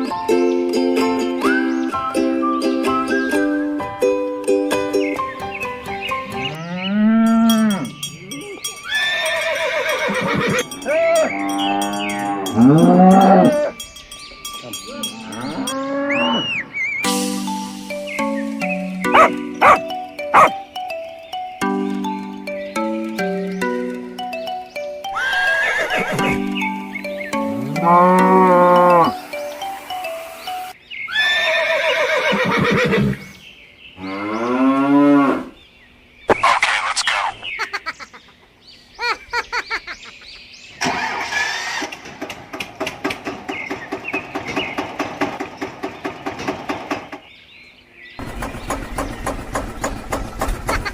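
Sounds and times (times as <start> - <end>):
cows mooing: 6.3 - 13.8, 14.7 - 16.8, 25.2 - 26.5, 27.3 - 29.3, 34.0 - 35.5
horse whinnying: 8.9 - 11.3, 25.2 - 26.4, 31.1 - 33.2
light background music: 17.0 - 30.8.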